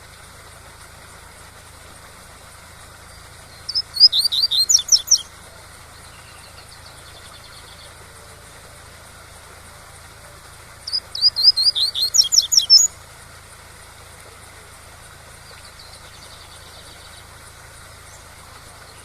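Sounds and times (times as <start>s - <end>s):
bird singing whistled notes: 3.5s - 5.3s, 10.9s - 12.9s.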